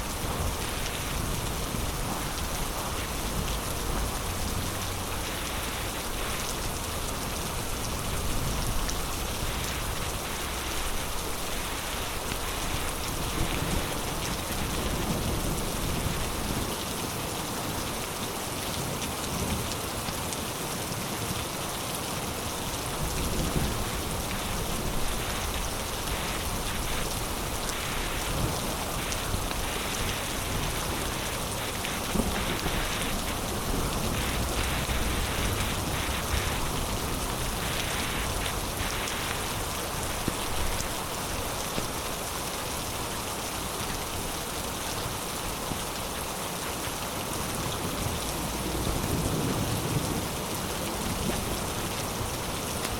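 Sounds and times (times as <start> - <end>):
heavy rain pouring: 0.0 - 52.9
sharp raindrop hits: 23.0 - 42.1.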